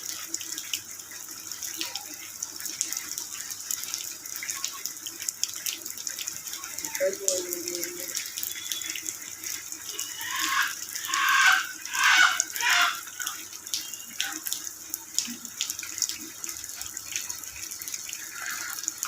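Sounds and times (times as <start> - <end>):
rain falling: 0.0 - 19.0
running and splashing water: 0.0 - 19.0.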